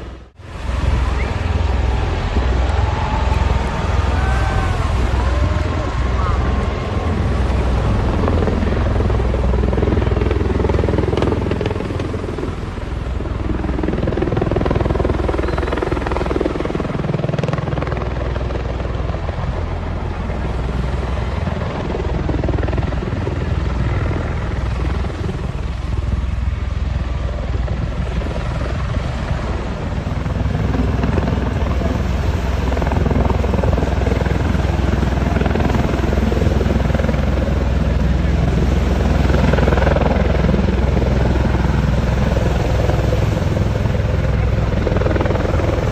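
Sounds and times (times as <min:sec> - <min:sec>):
tiltrotor aircraft rotor thrum: 0:00.0 - 0:17.8.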